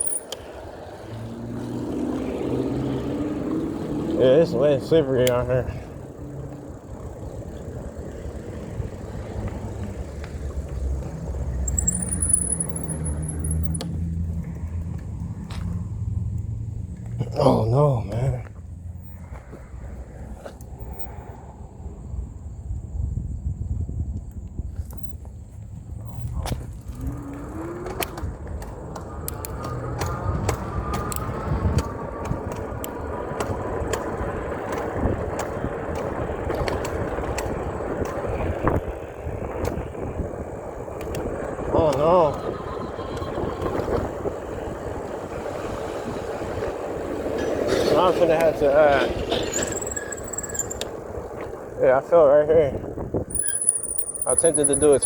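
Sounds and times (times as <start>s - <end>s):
road noise on wet street: 0.0s - 55.0s
sharp clicks: 27.8s - 34.1s.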